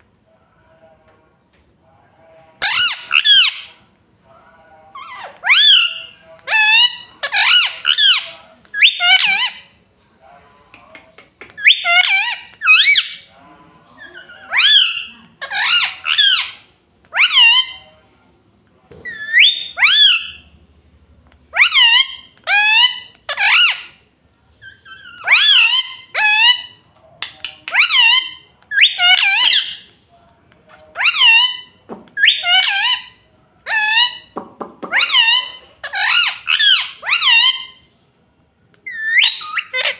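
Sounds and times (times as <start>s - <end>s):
parrot squawking: 2.6s - 3.8s, 5.0s - 9.7s, 11.4s - 13.3s, 14.0s - 17.9s, 19.0s - 20.4s, 21.5s - 24.0s, 24.6s - 29.8s, 31.0s - 37.8s, 38.8s - 39.9s.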